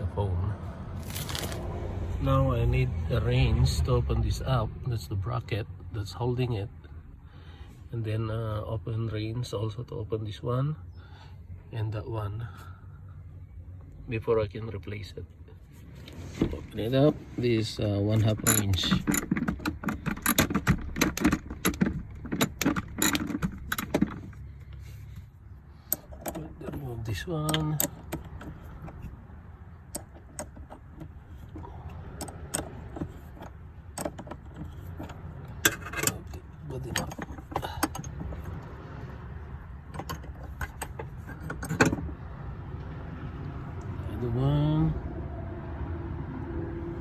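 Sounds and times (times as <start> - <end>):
steady low rumble: 0.0 - 7.9
wrench clicking on bolts: 18.2 - 24.4, 27.4 - 29.0, 29.9 - 38.6.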